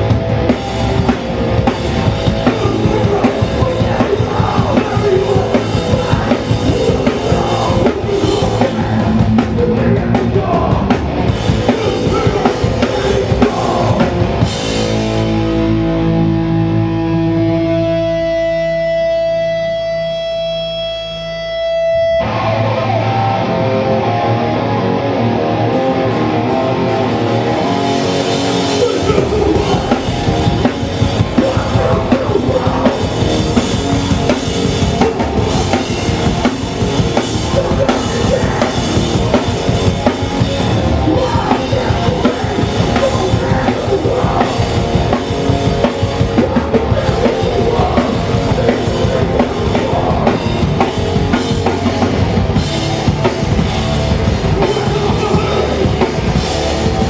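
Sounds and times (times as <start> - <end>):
punk band playing live: 0.0 - 57.0
held electric guitar tone: 13.8 - 54.6.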